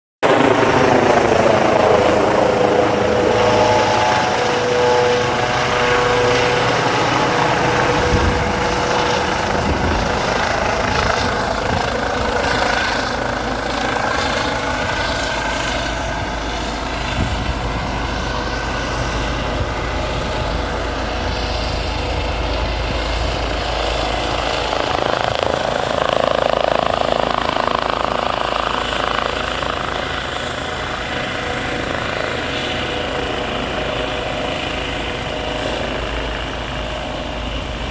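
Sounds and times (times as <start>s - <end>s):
helicopter flying low overhead: 0.2s - 37.9s
turbine whining tone: 0.2s - 37.9s.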